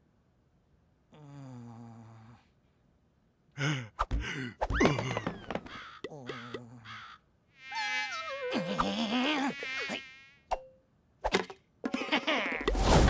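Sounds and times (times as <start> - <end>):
insect-like buzz: 9.4 - 10.5.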